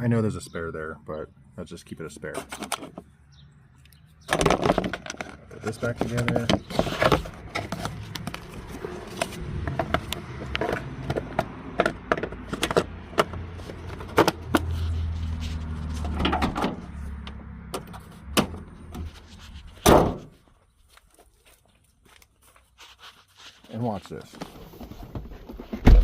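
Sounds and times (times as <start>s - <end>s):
plastic cover clicking and knocking: 9.7s - 13.4s.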